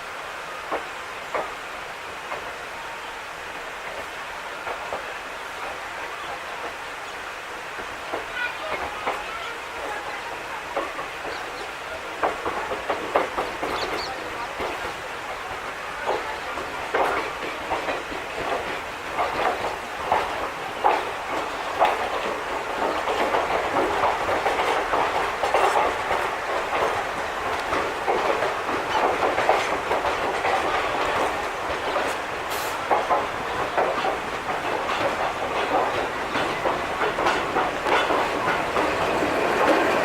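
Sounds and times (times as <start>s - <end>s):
train wheels clattering over joints: 7.6s - 40.0s
high hiss: 18.6s - 40.0s.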